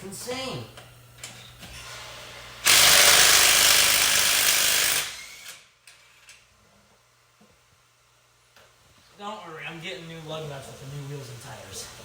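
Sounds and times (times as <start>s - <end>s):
power tool running: 1.7s - 5.7s.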